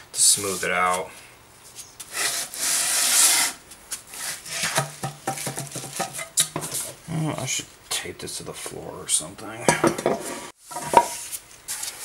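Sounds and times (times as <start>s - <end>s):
metal scraping on sandpaper: 2.1s - 4.8s
knocks on concrete floor: 4.6s - 6.7s.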